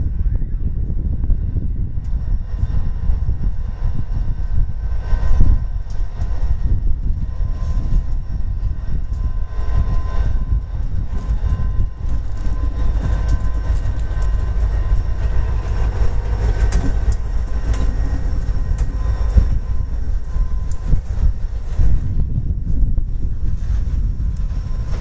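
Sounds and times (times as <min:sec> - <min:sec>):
freight train rumbling: 0:00.0 - 0:25.0
wheels clicking over rail joints: 0:05.2 - 0:25.0.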